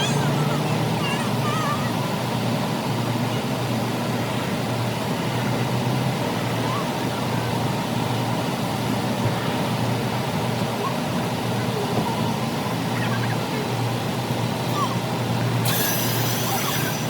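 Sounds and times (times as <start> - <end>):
mechanical drone: 13.0 - 17.0
low hum: 13.9 - 17.0
even hiss: 15.6 - 17.0.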